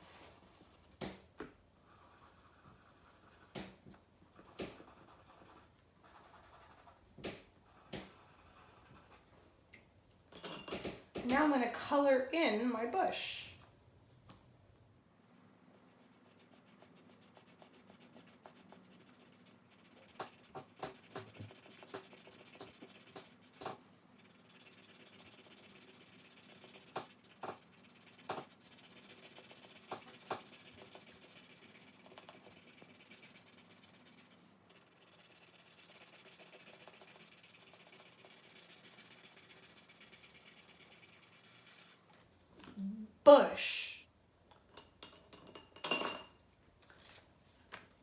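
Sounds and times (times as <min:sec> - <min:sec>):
pencil scratching on paper: 0:00.0 - 0:01.2, 0:01.8 - 0:09.3, 0:15.8 - 0:42.1.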